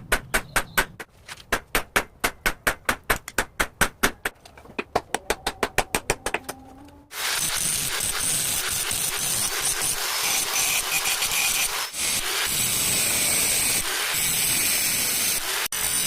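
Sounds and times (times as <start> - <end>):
power grinder grinding steel: 7.1 - 16.0.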